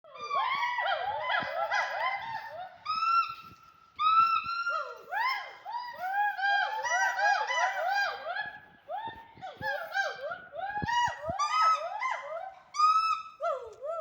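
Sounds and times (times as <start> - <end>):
chorus of animal calls: 0.0 - 14.0.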